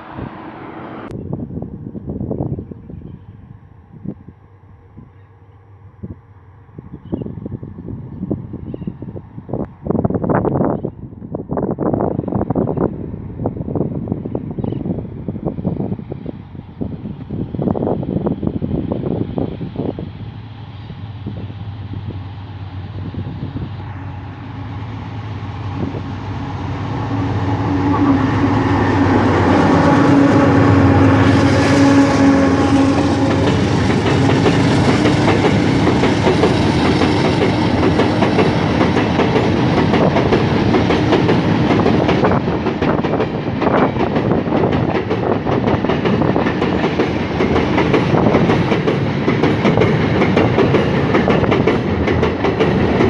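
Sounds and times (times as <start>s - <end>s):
diesel locomotive engine: 0.0s - 53.0s
train wheels clattering over rails: 28.9s - 53.0s.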